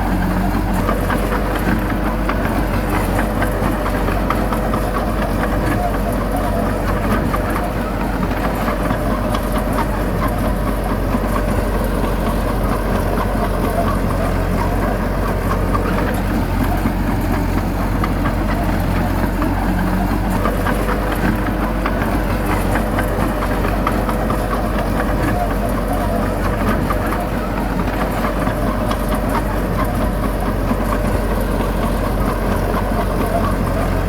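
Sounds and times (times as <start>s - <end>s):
heavy diesel engine running: 0.0s - 34.0s.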